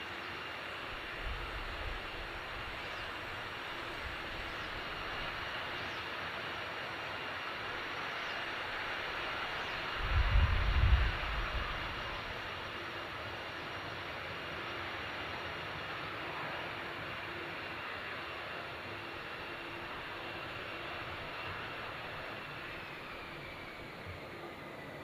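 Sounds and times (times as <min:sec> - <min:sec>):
distant turboprop engines droning: 0:00.0 - 0:25.0
wind buffeting microphone: 0:09.9 - 0:12.4.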